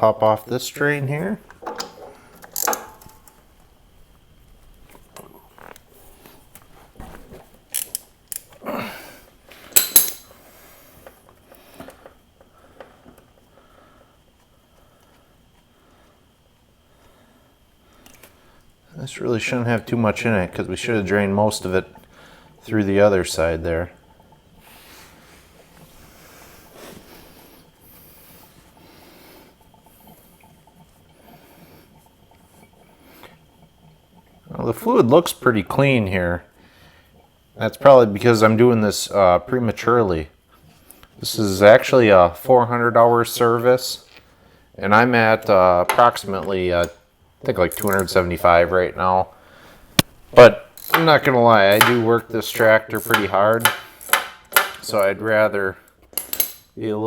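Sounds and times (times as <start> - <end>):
metallic clicks and clanks of tools: 1.5 - 3.4, 7.7 - 8.6, 9.7 - 10.3, 47.7 - 48.1, 50.8 - 55.0, 56.1 - 56.7.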